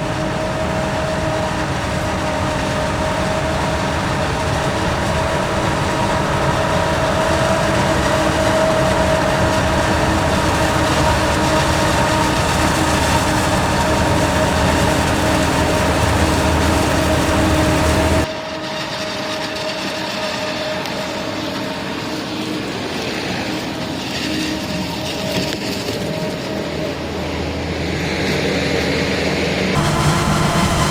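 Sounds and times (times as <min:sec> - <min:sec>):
heavy farm machinery running: 0:00.0 - 0:18.3, 0:29.8 - 0:30.9.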